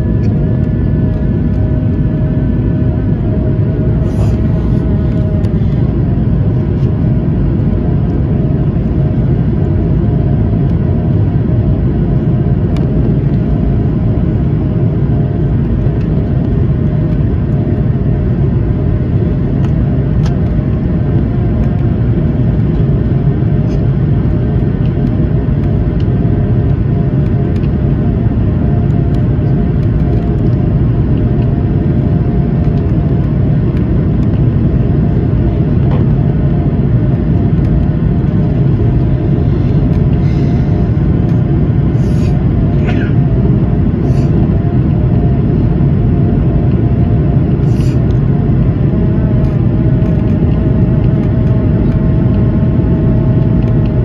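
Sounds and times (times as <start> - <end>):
faint humming tone: 0.0 - 7.7
aircraft cabin engine rumble: 0.0 - 54.0.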